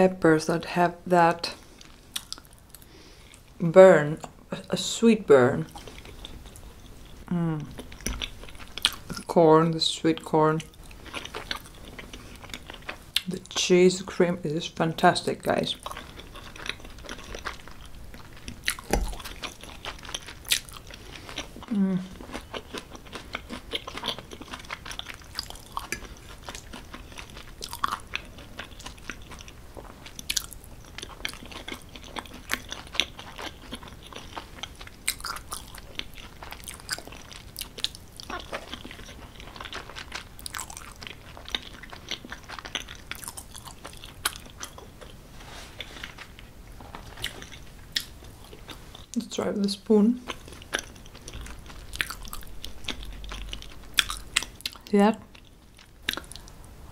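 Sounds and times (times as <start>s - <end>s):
close chewing with wet crunches: 7.8s - 9.3s, 10.6s - 13.3s, 15.7s - 45.2s, 50.2s - 56.6s.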